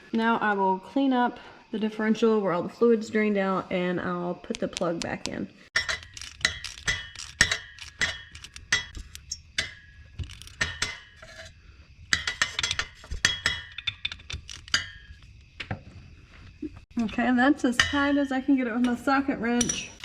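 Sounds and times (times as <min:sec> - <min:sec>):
socket wrench ratchet clicking: 0:05.8 - 0:09.4.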